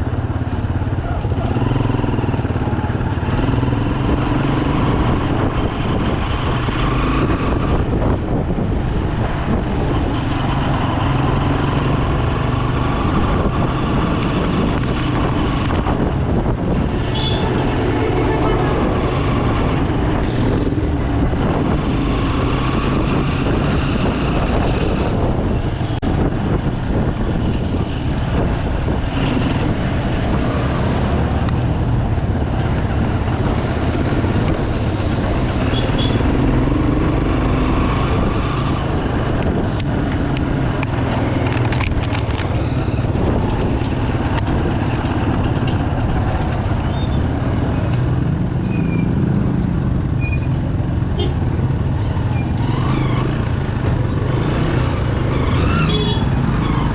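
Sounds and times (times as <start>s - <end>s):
road and wind noise: 0.0s - 56.9s
motorcycle engine running: 49.5s - 56.9s.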